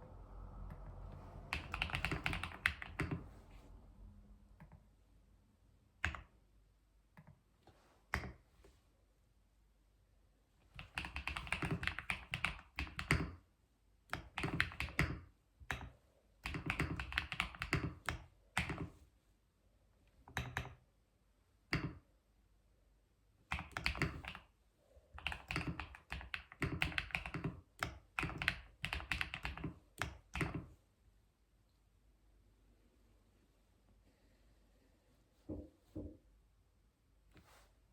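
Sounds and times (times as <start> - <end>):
keyboard typing: 0.7 - 3.3, 10.8 - 13.4, 14.1 - 18.9, 23.5 - 24.5, 25.2 - 30.7.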